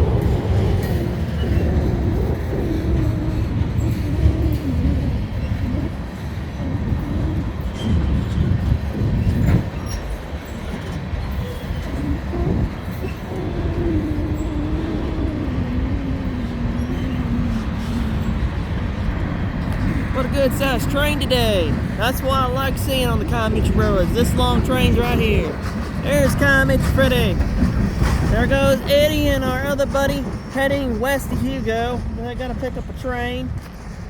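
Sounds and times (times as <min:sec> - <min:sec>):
freight train rumbling past: 0:00.0 - 0:34.0.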